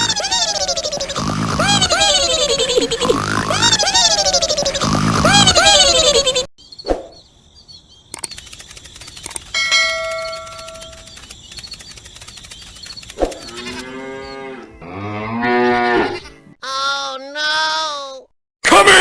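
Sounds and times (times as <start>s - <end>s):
steady ringing tone: 9.5s - 11.3s
cow mooing: 13.5s - 16.4s.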